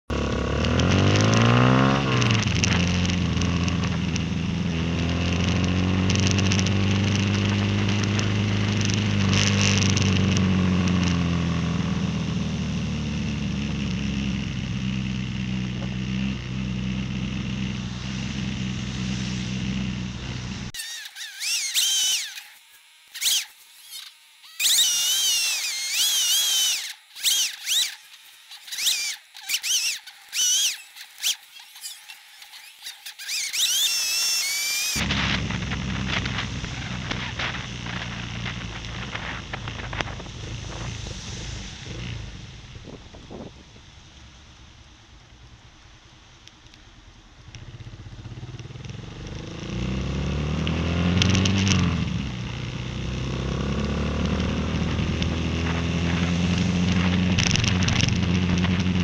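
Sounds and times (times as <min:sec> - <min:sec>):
motorcycle engine accelerating: 0:00.1 - 0:59.0
high warbling whistle-like tones: 0:20.7 - 0:35.0.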